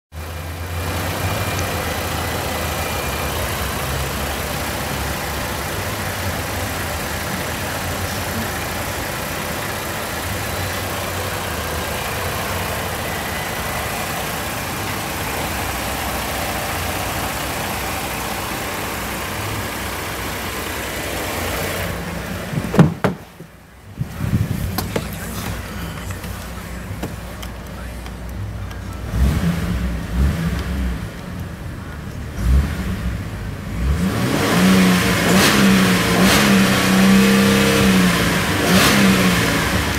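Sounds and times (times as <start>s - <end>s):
car engine idling: 0.1s - 39.9s
sharp knock: 22.6s - 23.3s.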